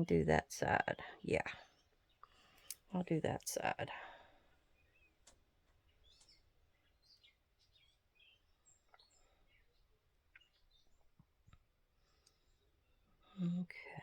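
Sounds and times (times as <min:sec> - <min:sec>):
faint bird chirps: 0:04.7 - 0:11.2.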